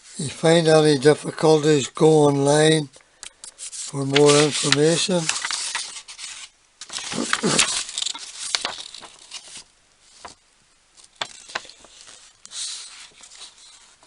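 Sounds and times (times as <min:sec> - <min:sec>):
packaging rustling: 0:03.6 - 0:14.0.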